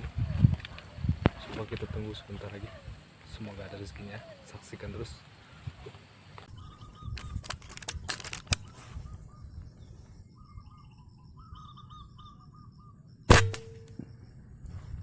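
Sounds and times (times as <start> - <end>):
small birds chirping: 0.2 - 13.3
air rifle shot: 13.3 - 14.0.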